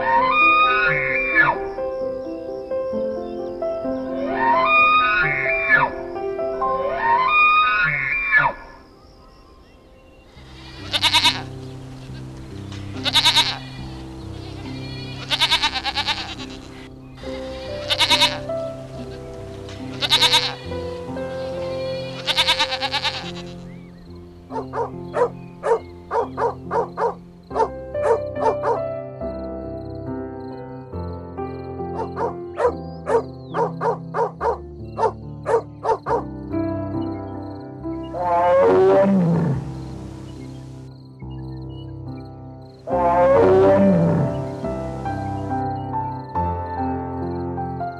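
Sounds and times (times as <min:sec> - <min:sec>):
background music with held notes: 0:00.0 - 0:07.7, 0:09.2 - 0:47.9
farm animal bleating: 0:10.4 - 0:23.8, 0:38.1 - 0:40.1, 0:42.9 - 0:45.0
dog barking: 0:24.5 - 0:28.8, 0:32.0 - 0:36.3.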